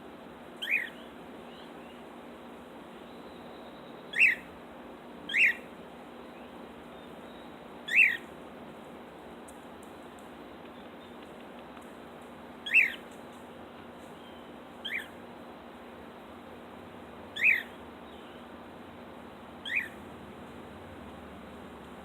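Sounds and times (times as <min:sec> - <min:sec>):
cockatiel chirps: 0:00.6 - 0:01.0, 0:04.1 - 0:04.5, 0:05.3 - 0:05.7, 0:07.9 - 0:08.2, 0:12.6 - 0:13.0, 0:14.2 - 0:15.2, 0:17.4 - 0:18.3, 0:19.6 - 0:20.0.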